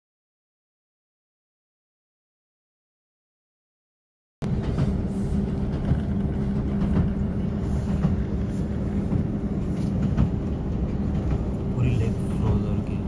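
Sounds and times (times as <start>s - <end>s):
constant hum: 4.4s - 13.0s
train rumble inside carriage: 4.4s - 13.0s.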